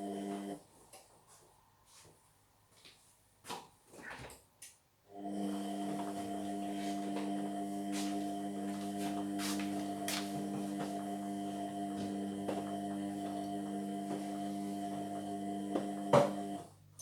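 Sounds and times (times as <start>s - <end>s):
washing machine hum: 0.0s - 0.6s, 5.1s - 17.0s.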